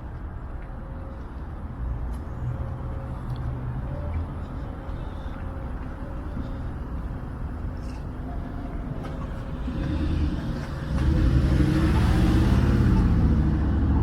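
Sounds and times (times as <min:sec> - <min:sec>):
city street traffic: 0:00.0 - 0:14.0
vehicle engine driving close by: 0:09.0 - 0:14.0.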